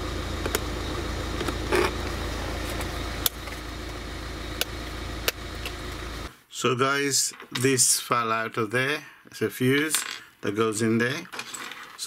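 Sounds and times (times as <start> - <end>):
car engine idling: 0.0 - 6.3.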